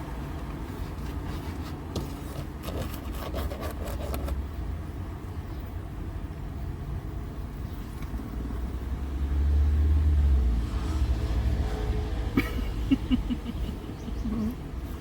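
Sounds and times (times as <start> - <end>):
low vehicle rumble: 4.4 - 15.0.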